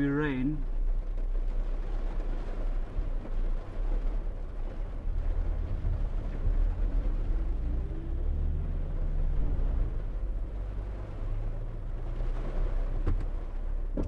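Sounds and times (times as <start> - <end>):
heavy rain on a car: 0.0 - 14.0
steady low rumble: 0.0 - 14.0.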